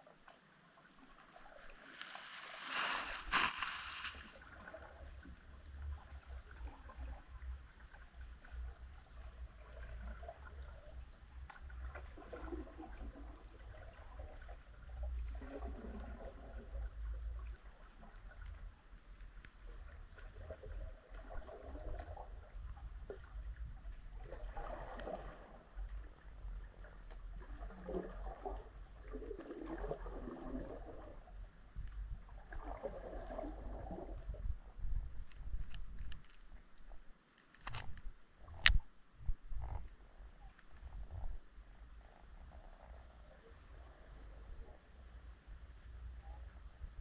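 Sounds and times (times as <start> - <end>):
low underwater rumble: 0.7 - 47.0
faint gurgling: 24.0 - 31.5, 32.2 - 36.0.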